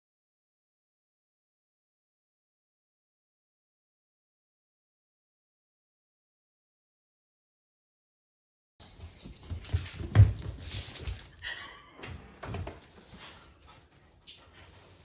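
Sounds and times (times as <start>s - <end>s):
knocks and thumps: 9.2s - 11.2s.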